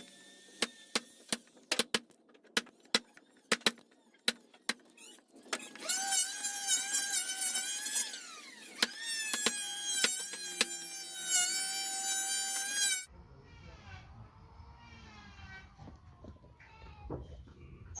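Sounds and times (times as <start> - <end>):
power tool motor whining: 5.0 - 13.1.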